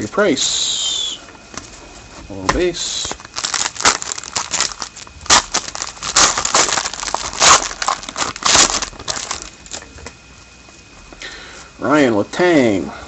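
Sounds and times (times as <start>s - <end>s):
wrapper crinkling: 3.1s - 9.9s.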